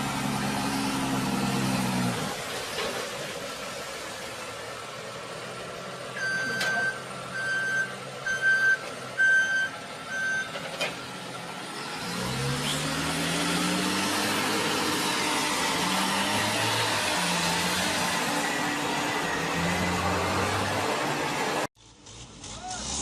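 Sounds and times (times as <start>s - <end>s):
heavy vehicle engine accelerating: 0.0s - 23.0s
reversing alarm beeping: 6.2s - 10.6s.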